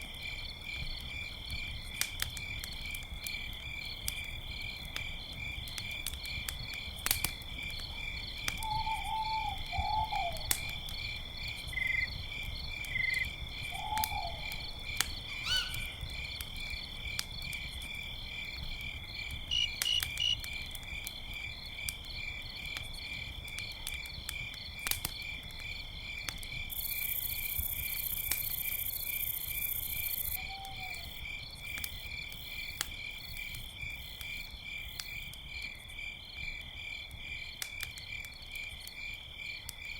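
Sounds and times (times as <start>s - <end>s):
campfire crackling: 0.0s - 39.9s
crickets chirping: 0.0s - 39.9s
low animal calls: 13.7s - 14.7s, 15.4s - 16.0s.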